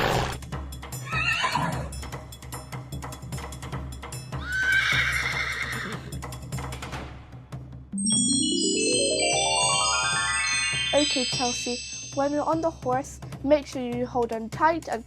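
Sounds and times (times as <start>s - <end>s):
horse whinnying: 1.0s - 1.9s, 4.4s - 6.2s
background music: 6.2s - 15.0s.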